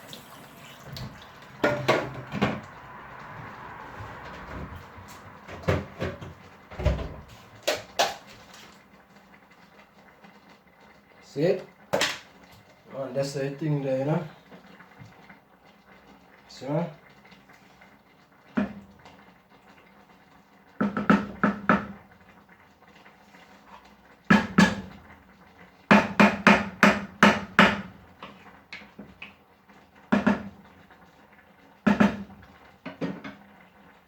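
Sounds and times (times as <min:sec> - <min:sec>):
metal spoon knocking on pot: 0:01.6 - 0:02.4.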